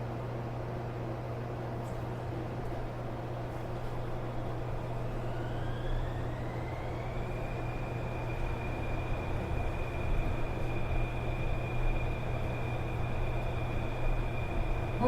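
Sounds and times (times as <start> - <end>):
train hum and rumble: 0.0 - 15.0
traction motor whine: 4.2 - 15.0.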